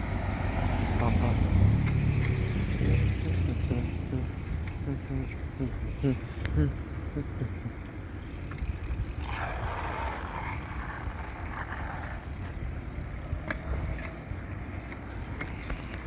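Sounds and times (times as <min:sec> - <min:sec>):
bicycle tyre noise: 0:00.0 - 0:16.0
wind rumbling on microphone: 0:00.0 - 0:16.0.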